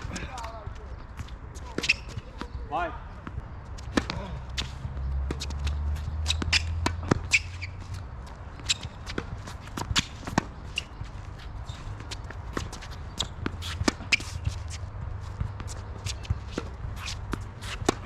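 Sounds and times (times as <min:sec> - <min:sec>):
tennis ball bouncing: 0:03.2 - 0:18.0
shoes scuffing on hard court: 0:03.8 - 0:18.0.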